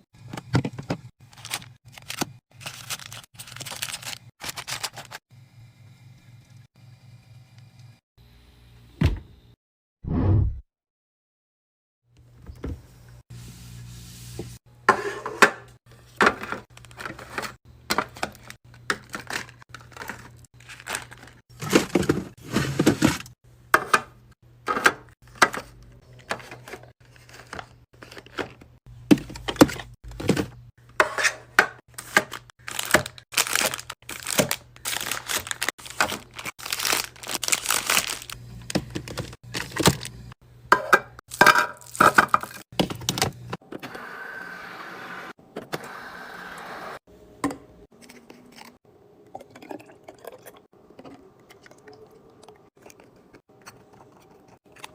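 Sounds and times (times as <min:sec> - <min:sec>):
plastic crinkling and tearing: 0:01.2 - 0:05.2, 0:19.2 - 0:21.4, 0:31.9 - 0:38.4
items knocking when set down: 0:21.5 - 0:24.1, 0:27.5 - 0:33.1.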